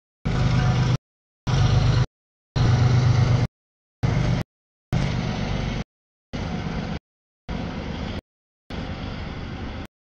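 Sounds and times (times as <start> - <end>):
freight train rumbling past: 0.3 - 4.4, 6.4 - 9.8.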